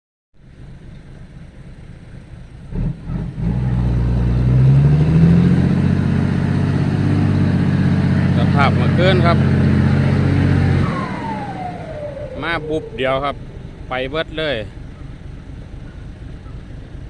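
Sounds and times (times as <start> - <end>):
vehicle engine running: 0.4 - 17.0.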